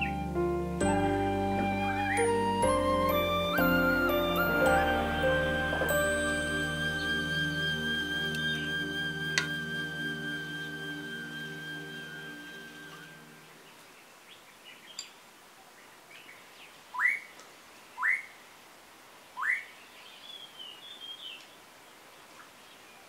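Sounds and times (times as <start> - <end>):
bird whistled calls sweeping upward: 0.0 - 13.5, 16.9 - 17.3, 18.0 - 18.3, 19.4 - 21.4
birds chirping and twittering: 3.1 - 9.6, 10.2 - 18.4, 19.4 - 23.0.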